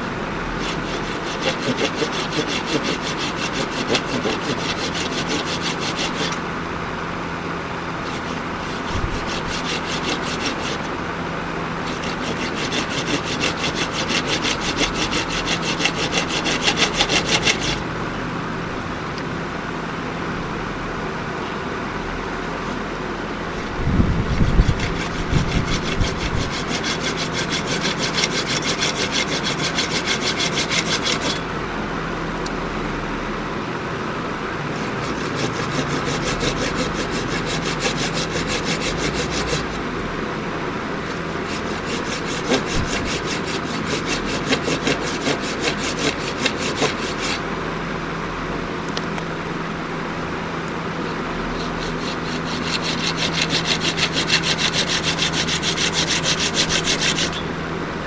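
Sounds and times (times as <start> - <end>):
tool strokes on wood: 0.6 - 6.5, 8.0 - 10.9, 11.8 - 17.8, 23.5 - 31.4, 34.8 - 39.8, 41.1 - 47.4, 51.1 - 57.5.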